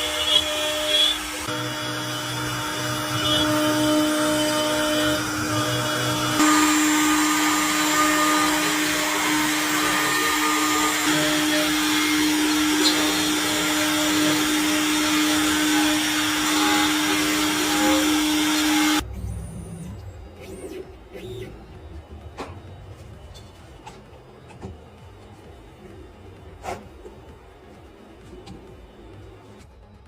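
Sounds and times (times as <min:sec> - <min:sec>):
router spindle whining: 0:00.0 - 0:19.1.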